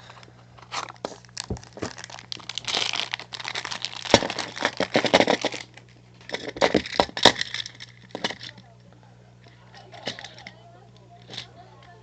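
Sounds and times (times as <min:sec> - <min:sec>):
packaging crinkling: 0:00.0 - 0:08.6.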